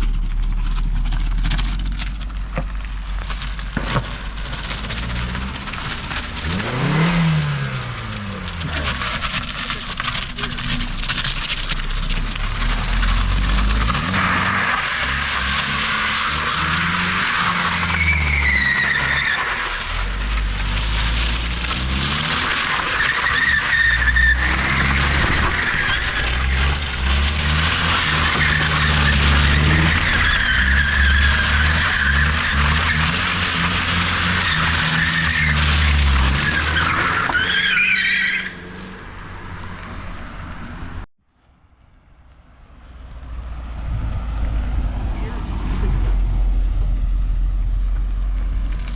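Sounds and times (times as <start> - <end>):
car engine revving: 0.0 - 41.1
tyres squealing: 12.7 - 20.4, 22.2 - 38.9.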